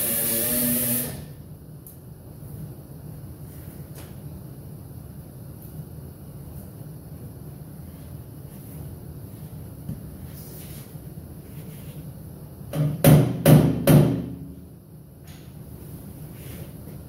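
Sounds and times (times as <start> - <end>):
steady low hum: 0.0 - 17.0
hammer striking sheet steel: 12.8 - 14.5.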